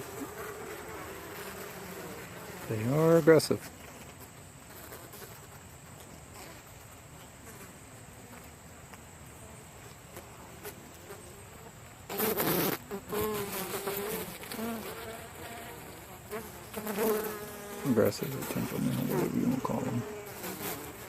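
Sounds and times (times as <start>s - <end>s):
bees buzzing: 0.0s - 5.5s, 12.1s - 21.0s.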